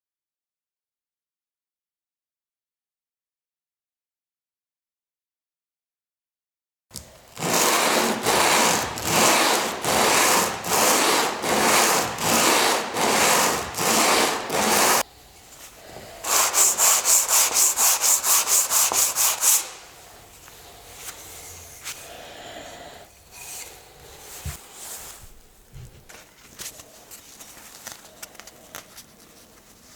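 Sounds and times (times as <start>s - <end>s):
handsaw cutting wood: 7.3s - 15.1s, 16.2s - 19.9s.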